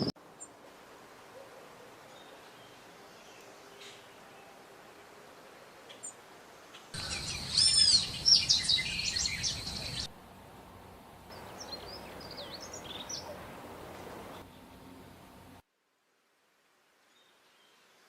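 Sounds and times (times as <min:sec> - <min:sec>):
songbirds calling: 0:01.3 - 0:04.6, 0:05.8 - 0:10.1, 0:11.3 - 0:15.2.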